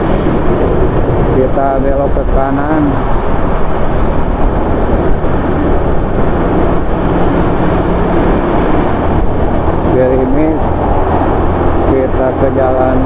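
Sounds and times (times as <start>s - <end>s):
wind rushing over microphone: 0.0s - 13.0s
motorcycle engine running: 3.2s - 12.2s.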